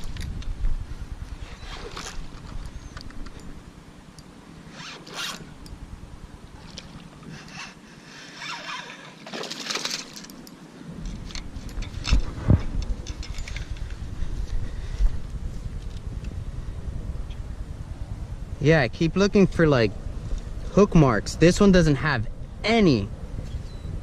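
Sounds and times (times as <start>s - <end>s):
wind buffeting microphone: 0.0s - 7.7s, 10.8s - 24.0s
zipper-like scrapes and rustles: 1.4s - 2.5s, 4.7s - 5.4s, 8.3s - 9.2s.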